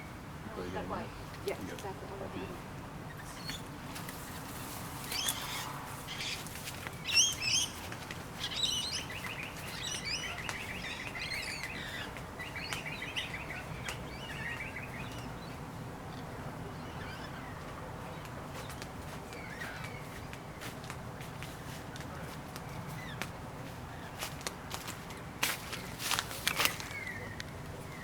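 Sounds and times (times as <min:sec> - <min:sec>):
birds whistled calls: 0:03.1 - 0:03.7, 0:05.0 - 0:15.5, 0:25.8 - 0:28.0.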